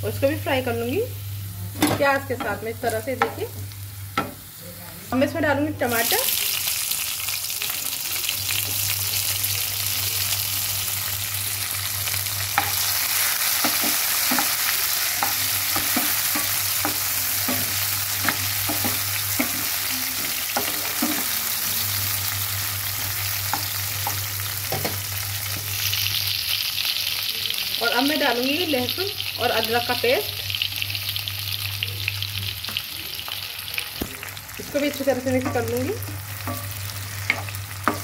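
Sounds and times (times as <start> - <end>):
tomatoes sizzling in hot oil: 0.0 - 38.0.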